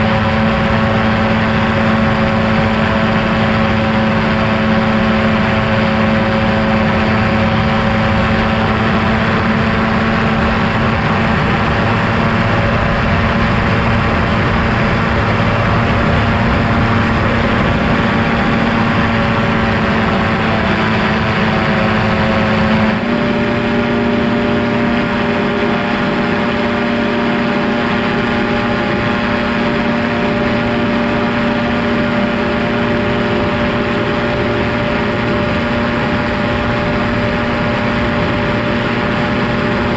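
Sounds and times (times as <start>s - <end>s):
ultralight engine and propeller droning: 0.0s - 39.9s.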